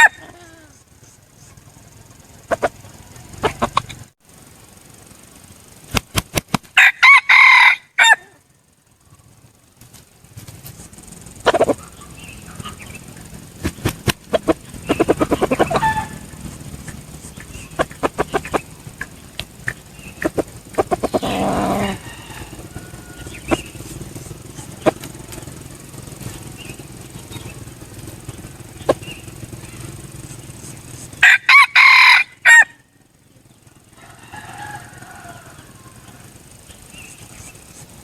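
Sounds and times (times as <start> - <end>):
rooster crowing: 0.0 - 0.7, 6.8 - 8.5, 14.4 - 17.0, 20.0 - 25.0, 31.1 - 32.9, 33.8 - 36.5
faint calls: 0.0 - 4.1, 10.8 - 38.0
sharp clicks: 5.8 - 6.8, 9.8 - 22.0.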